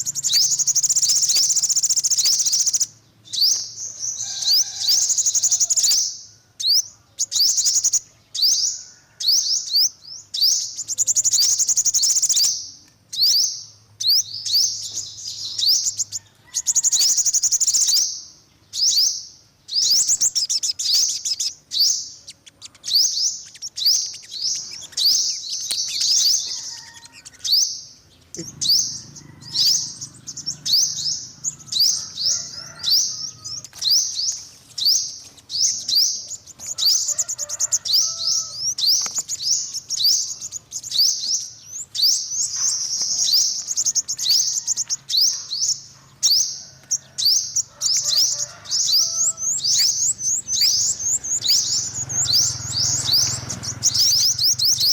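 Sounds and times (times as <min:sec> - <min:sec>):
sunbird chirping song: 0:00.0 - 0:54.9.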